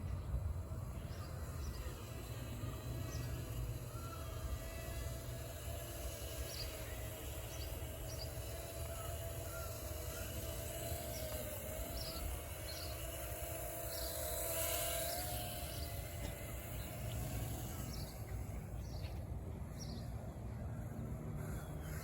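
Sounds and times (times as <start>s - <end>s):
electric model plane motor whine: 0.0s - 22.0s
bird calling: 6.4s - 15.1s.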